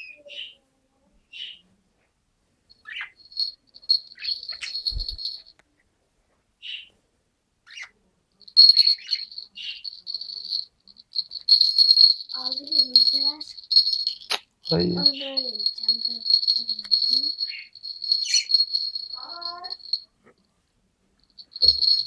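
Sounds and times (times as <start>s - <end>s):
small birds chirping: 2.8s - 5.5s, 8.5s - 20.0s.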